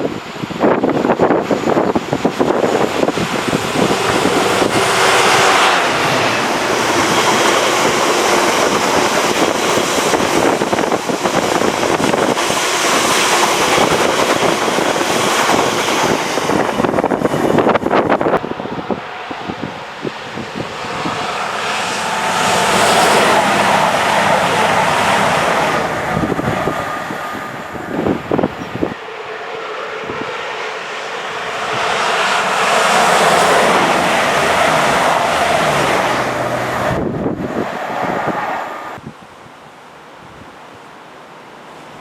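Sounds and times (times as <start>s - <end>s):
wind buffeting microphone: 0.0s - 30.6s, 31.2s - 39.6s
train passing: 0.0s - 39.0s.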